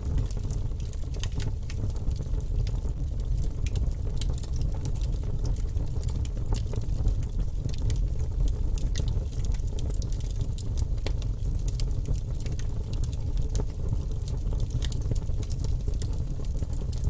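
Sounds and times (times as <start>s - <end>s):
fire crackling and snapping: 0.0s - 17.0s
fire flames rumbling: 0.0s - 17.0s.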